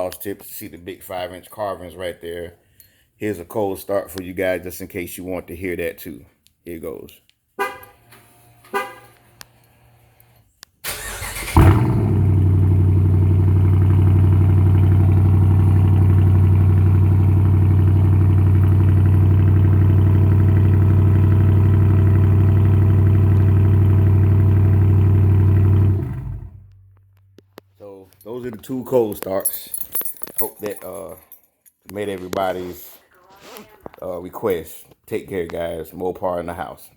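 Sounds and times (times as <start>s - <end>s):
loud deep engine idle: 11.6s - 26.6s.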